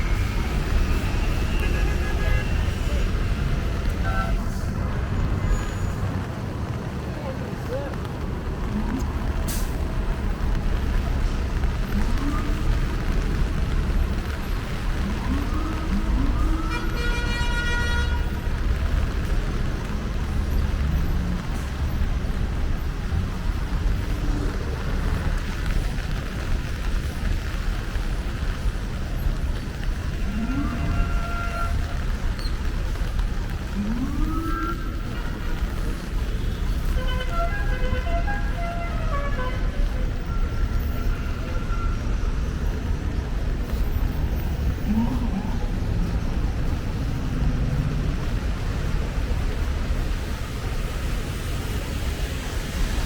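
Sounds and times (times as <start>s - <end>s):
city traffic rumble: 0.0s - 53.0s
vehicle horn: 1.3s - 3.0s, 4.0s - 4.6s, 16.7s - 18.4s, 30.7s - 32.0s.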